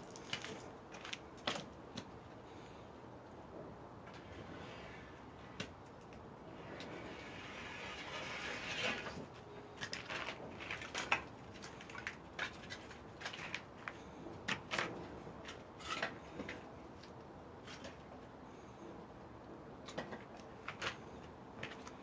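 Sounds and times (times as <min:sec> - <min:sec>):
firewood cracking and popping: 0:09.8 - 0:18.0.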